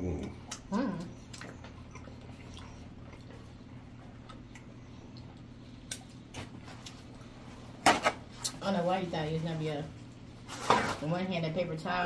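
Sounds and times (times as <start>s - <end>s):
low steady hum: 0.0s - 12.0s
chewing mouth clicks and smacks: 0.2s - 7.1s.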